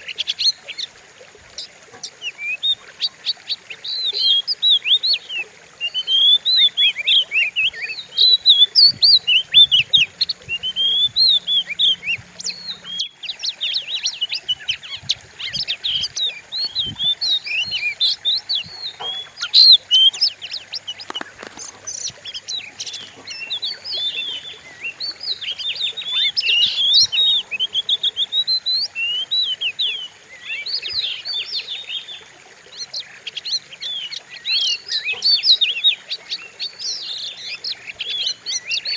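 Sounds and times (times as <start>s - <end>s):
bird singing whistles and chirps: 3.7s - 32.2s.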